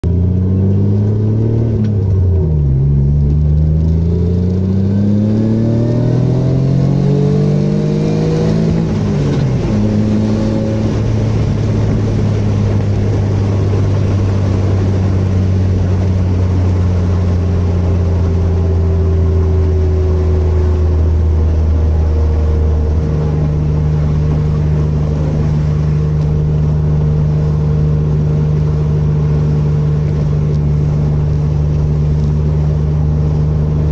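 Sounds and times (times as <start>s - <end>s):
car engine revving and idling: 0.0s - 33.9s.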